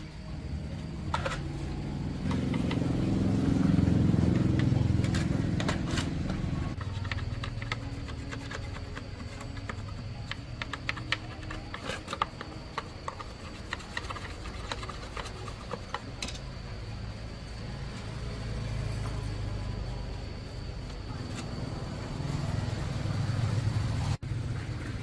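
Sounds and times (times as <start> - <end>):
faint high whine: 0.0 - 25.0
motorcycle engine running: 1.5 - 11.5.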